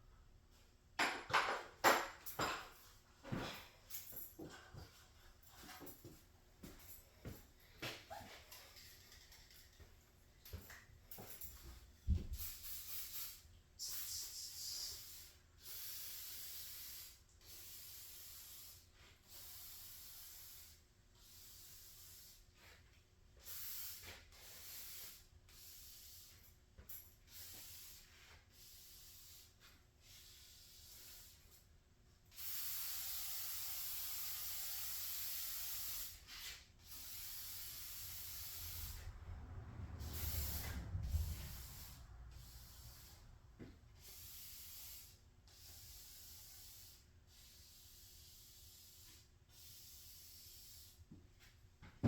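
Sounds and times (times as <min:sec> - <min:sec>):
faint hissing bursts: 0:11.2 - 0:22.8, 0:23.4 - 0:31.7, 0:32.3 - 0:43.3, 0:44.0 - 0:51.1.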